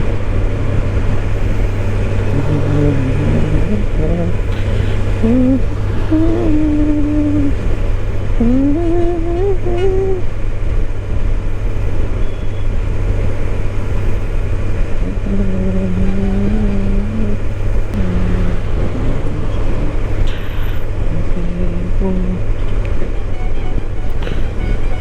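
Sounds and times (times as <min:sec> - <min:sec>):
motorcycle engine running: 0:00.0 - 0:12.3
road and wind noise: 0:00.0 - 0:25.0.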